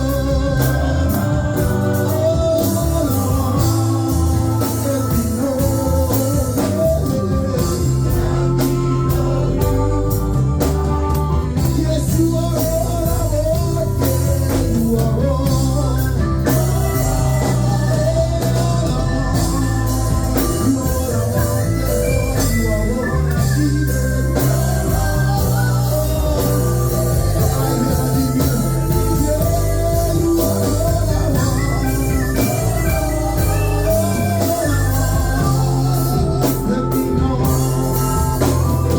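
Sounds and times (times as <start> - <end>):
bass: 0.0 - 38.9
drums: 0.0 - 38.9
organ: 0.0 - 38.9
person singing: 0.0 - 38.9.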